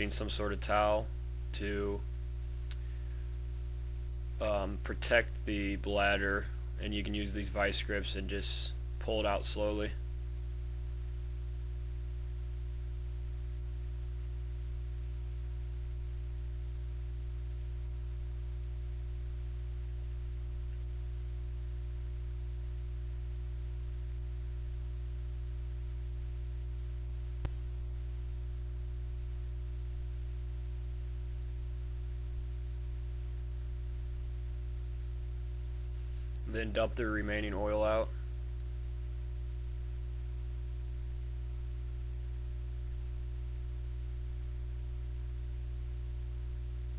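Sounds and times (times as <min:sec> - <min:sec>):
low electrical hum: 0:00.0 - 0:46.9.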